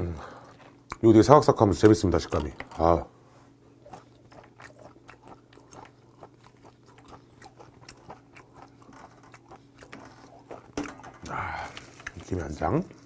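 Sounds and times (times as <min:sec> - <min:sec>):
chewing raw fish: 0:00.2 - 0:03.0, 0:03.7 - 0:13.0.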